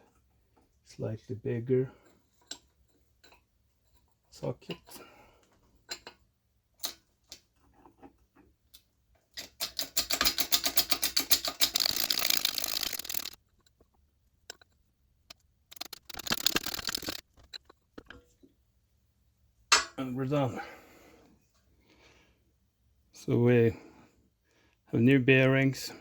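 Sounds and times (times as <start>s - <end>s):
fast metallic clicking: 9.6s - 13.9s, 15.3s - 18.2s.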